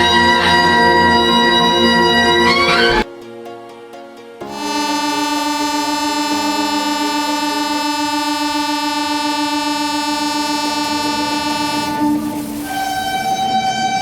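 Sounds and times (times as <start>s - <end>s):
train horn blast: 0.0s - 3.1s, 5.6s - 13.9s.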